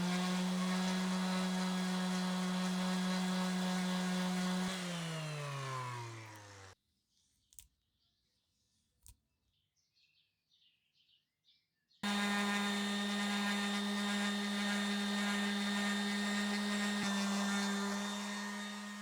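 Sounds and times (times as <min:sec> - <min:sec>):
electric power tool humming: 0:00.0 - 0:06.8, 0:12.0 - 0:19.0.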